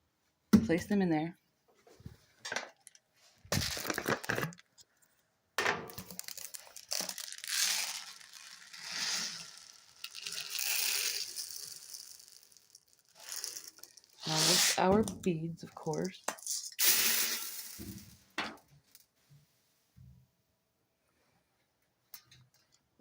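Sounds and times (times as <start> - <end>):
plastic packaging crinkling: 3.5 - 4.8, 5.9 - 14.8.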